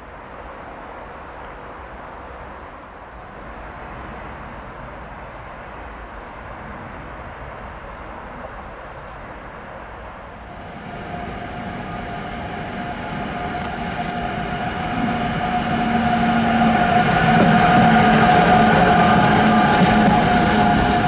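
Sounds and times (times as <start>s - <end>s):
train wheels rumbling on rail: 0.0s - 21.0s
locomotive whine: 10.2s - 21.0s.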